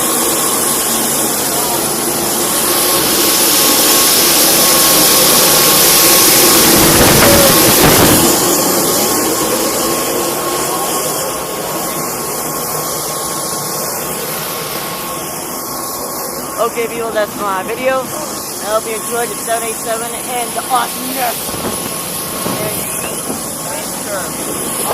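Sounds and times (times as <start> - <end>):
turbine whine: 0.0 - 24.9
loud rushing noise: 1.5 - 10.6.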